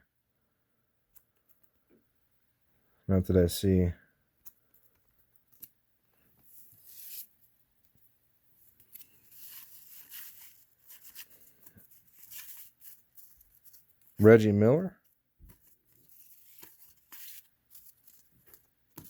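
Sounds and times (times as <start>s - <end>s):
cardboard cards rustling and sliding: 4.8s - 14.4s, 15.4s - 19.0s.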